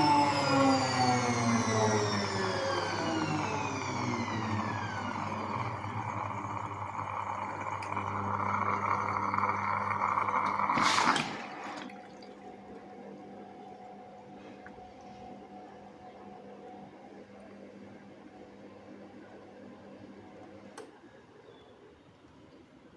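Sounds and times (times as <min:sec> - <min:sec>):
steady hum: 0:00.0 - 0:13.2
washing machine drum whine: 0:00.0 - 0:15.0
water rushing: 0:01.9 - 0:12.5.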